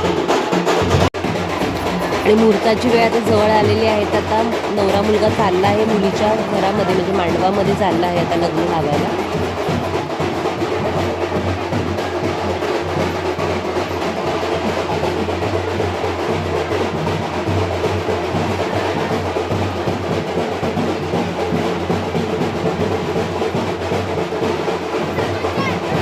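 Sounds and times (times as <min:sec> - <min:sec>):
snare and bass drums beating: 0:00.0 - 0:26.0
wedding band music: 0:00.2 - 0:19.6.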